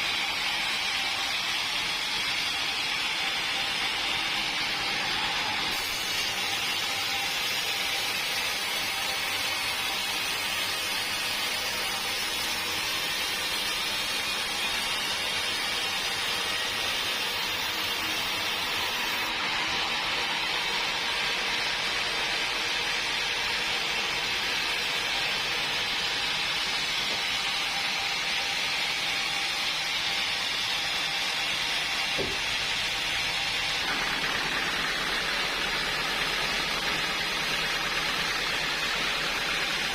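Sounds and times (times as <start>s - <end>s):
sawmill machinery hissing: 0.0s - 39.9s
brief knock: 32.2s - 32.4s.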